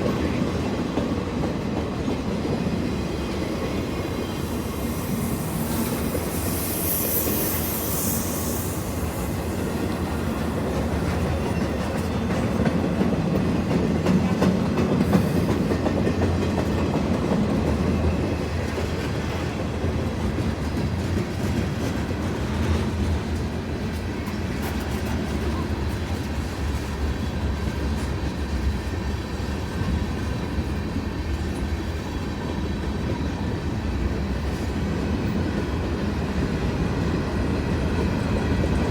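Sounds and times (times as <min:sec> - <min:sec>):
train wheels rumbling on rails: 0:00.0 - 0:38.9
high hiss: 0:03.9 - 0:10.9.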